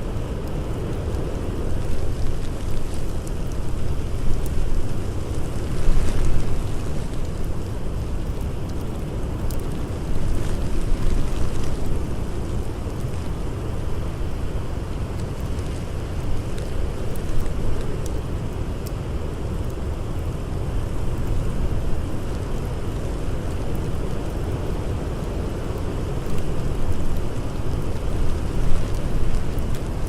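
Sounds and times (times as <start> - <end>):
campfire crackling: 0.0 - 30.0
wind howling: 0.0 - 30.0.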